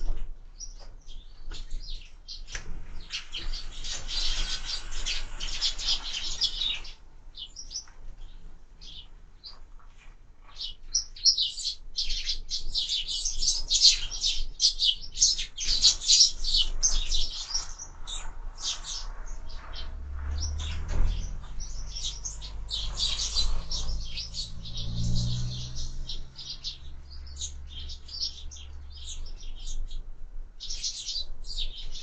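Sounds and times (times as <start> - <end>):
sparrows chirping: 0.0 - 32.0
low rumble: 19.0 - 29.4.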